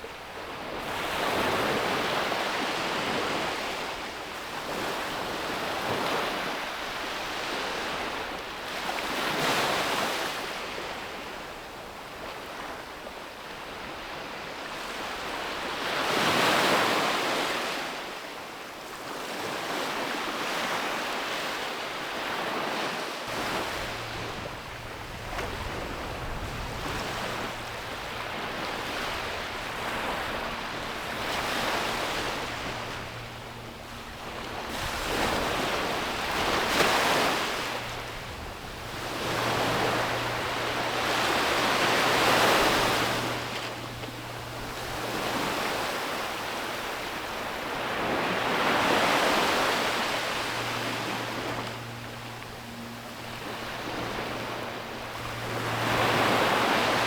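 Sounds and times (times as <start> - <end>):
sea waves breaking on beach: 0.0 - 57.0
steady low hum: 23.3 - 57.0.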